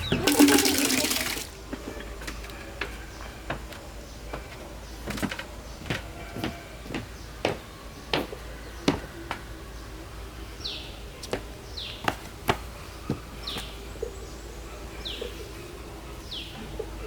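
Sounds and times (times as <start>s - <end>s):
bird chirping: 0.0s - 0.5s.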